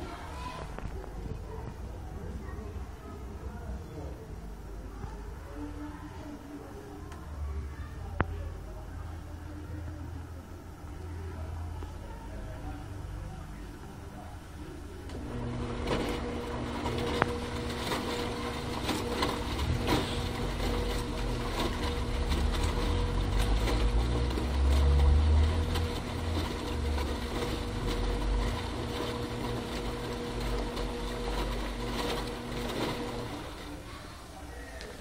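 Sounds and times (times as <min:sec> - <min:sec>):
washing machine motor hum: 0:00.0 - 0:35.0.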